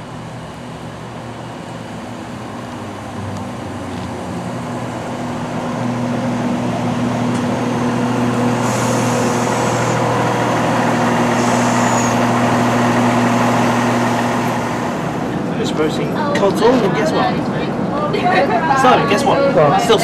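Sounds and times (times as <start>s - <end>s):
train engine drone: 0.0s - 18.2s
high-pitched hisses: 11.3s - 12.8s.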